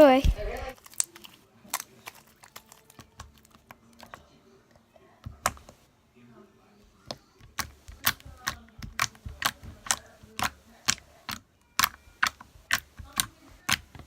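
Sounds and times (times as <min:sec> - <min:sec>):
slime clicking pops: 0:07.6 - 0:13.9.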